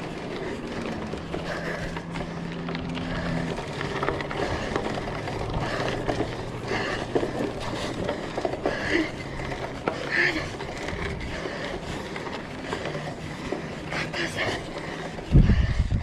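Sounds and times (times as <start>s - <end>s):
bike clicks and rattles: 0.0s - 16.0s
bike tyre noise on trail: 0.0s - 16.0s
wind on microphone: 15.3s - 16.0s.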